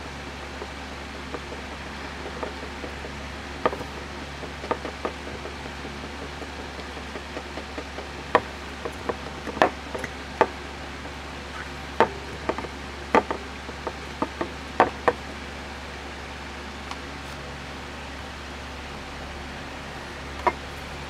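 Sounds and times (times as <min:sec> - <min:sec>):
steady low hum: 0:00.0 - 0:21.0
tools clicking and knocking: 0:00.4 - 0:15.3, 0:20.4 - 0:20.6.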